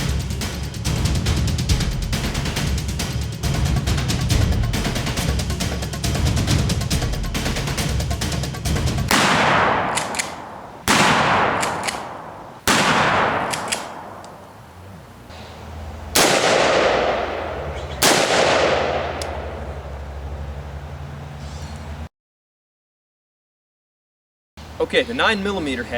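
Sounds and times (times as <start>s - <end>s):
handgun shots with echo: 9.1s - 14.6s, 16.2s - 19.6s.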